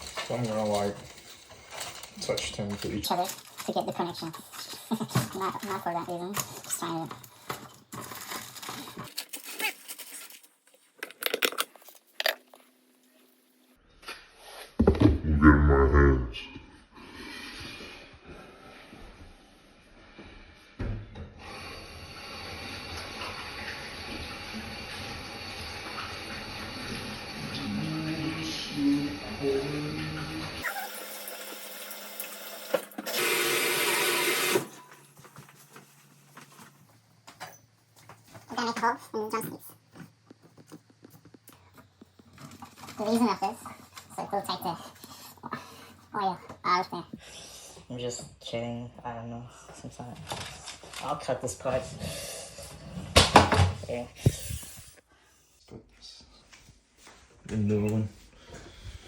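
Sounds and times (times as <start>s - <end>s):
tap water running into sink: 30.6s - 34.7s.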